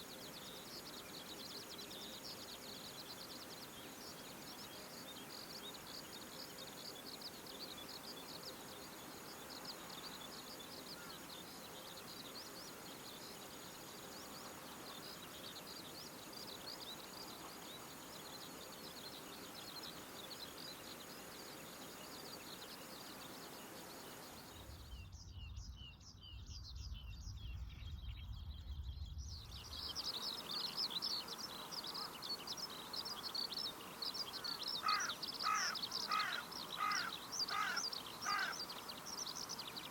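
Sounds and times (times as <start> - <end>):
small birds chirping: 0.0 - 39.9
low rumble: 25.0 - 29.9.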